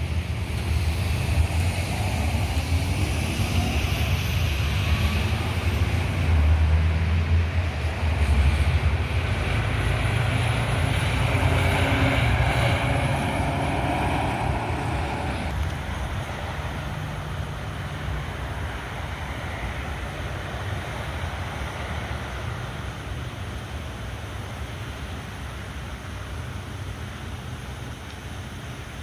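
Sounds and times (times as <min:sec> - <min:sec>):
truck passing: 0:00.0 - 0:23.3
road traffic rumble: 0:00.0 - 0:29.0.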